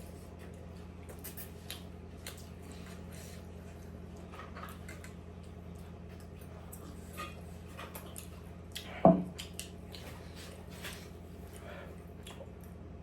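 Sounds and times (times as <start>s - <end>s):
steady low hum: 0.0s - 13.0s
wet chewing and mouth clicks: 7.8s - 10.6s, 11.5s - 12.8s.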